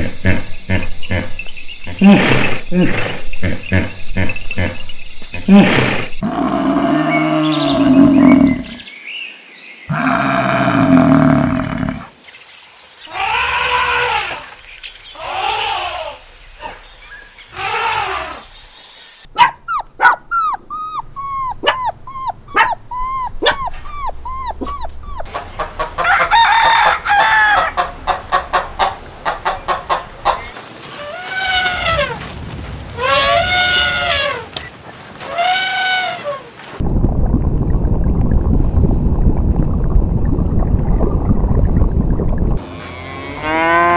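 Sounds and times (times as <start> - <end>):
farm animal calls: 19.4 - 30.5.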